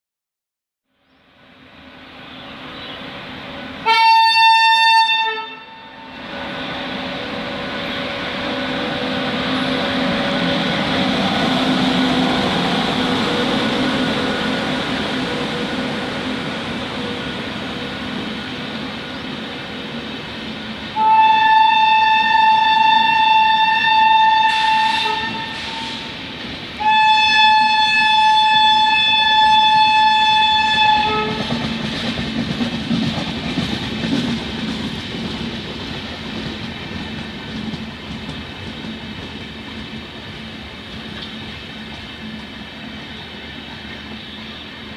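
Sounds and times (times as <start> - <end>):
train rumbling: 1.2 - 44.9
train horn blasts: 3.8 - 6.3, 20.9 - 26.2, 26.8 - 31.6.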